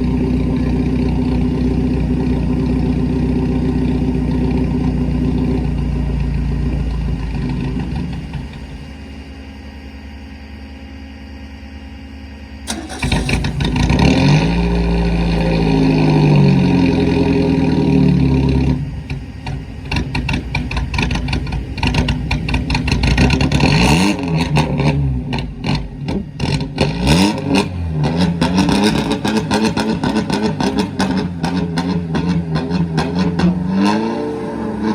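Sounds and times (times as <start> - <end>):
engine crackles and pops: 0.0 - 11.3, 12.3 - 34.9
race car engine revving: 12.7 - 34.9.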